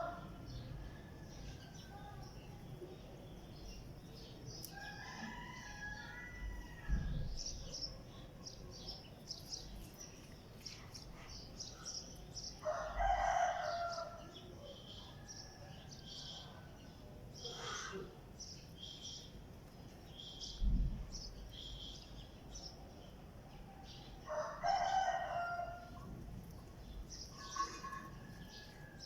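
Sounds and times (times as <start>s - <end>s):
birds chirping: 0.0s - 29.0s
low thump: 20.6s - 21.2s.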